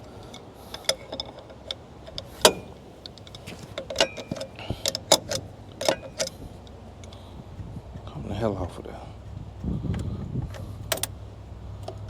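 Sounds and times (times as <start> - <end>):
hand tools clinking on metal: 0.2 - 6.4.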